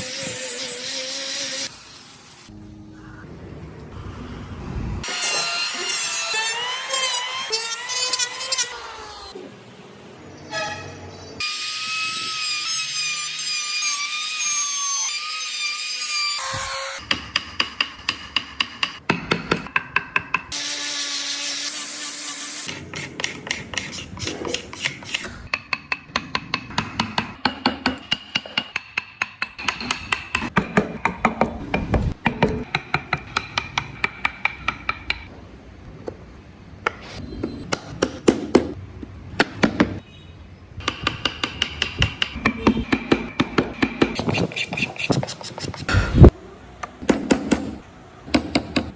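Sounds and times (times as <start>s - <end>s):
hammer tapping carving chisel: 17.0s - 20.5s, 23.2s - 35.3s, 40.8s - 45.8s.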